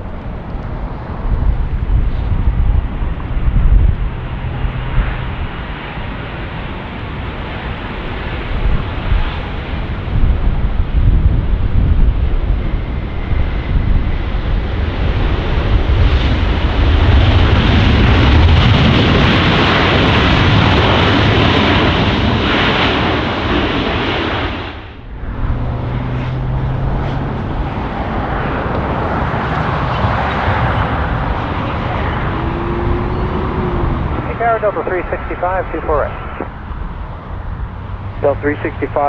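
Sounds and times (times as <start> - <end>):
jet engines roaring: 0.0 - 39.0
steady low hum: 30.6 - 39.0.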